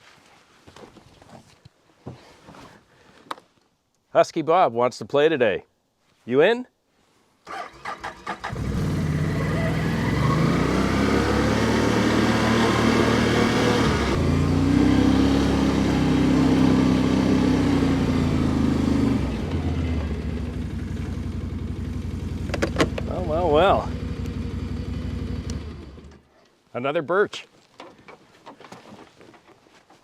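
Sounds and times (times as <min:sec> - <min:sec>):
chainsaw running: 0:08.5 - 0:21.1.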